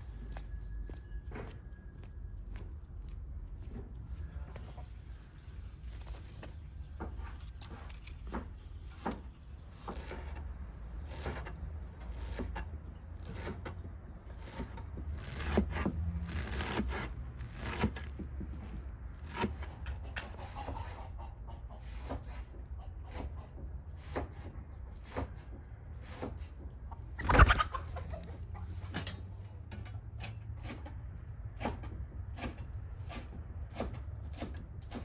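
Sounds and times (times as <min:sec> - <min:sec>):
scraping and rubbing strokes: 0:13.2 - 0:21.1.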